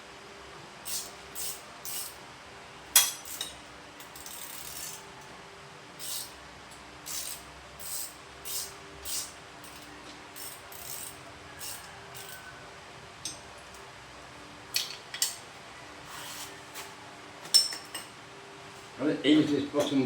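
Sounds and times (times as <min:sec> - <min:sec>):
rasping tool strokes on metal: 0:10.4 - 0:12.4.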